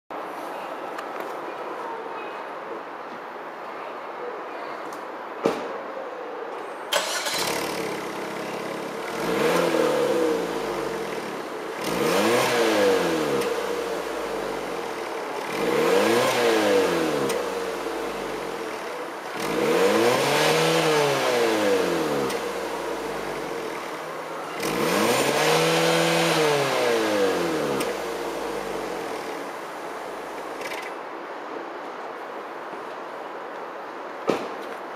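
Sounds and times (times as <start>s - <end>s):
car engine revving: 7.0s - 30.4s.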